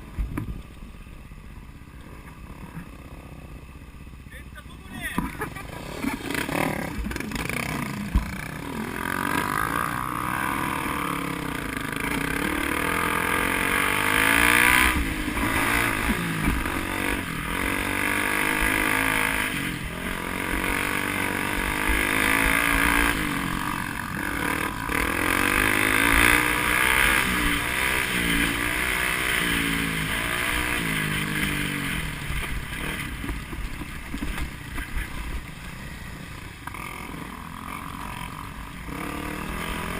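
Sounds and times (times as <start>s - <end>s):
vehicle engine revving: 5.6s - 33.4s, 36.7s - 39.9s.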